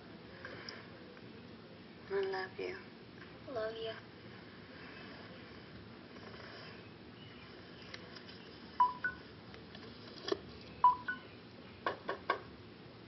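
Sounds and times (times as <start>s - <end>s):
rising two-note electronic beeps: 8.8s - 9.2s, 10.9s - 11.2s.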